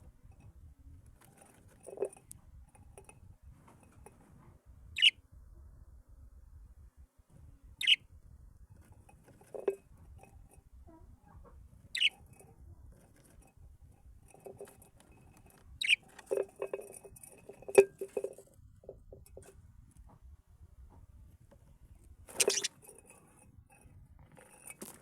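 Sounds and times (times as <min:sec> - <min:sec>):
light tapping and rustling: 0:00.0 - 0:04.6, 0:08.7 - 0:20.3, 0:20.9 - 0:25.0
cage birds chirping: 0:05.0 - 0:05.2, 0:07.8 - 0:08.0, 0:11.9 - 0:12.2, 0:15.8 - 0:16.2, 0:22.3 - 0:22.7.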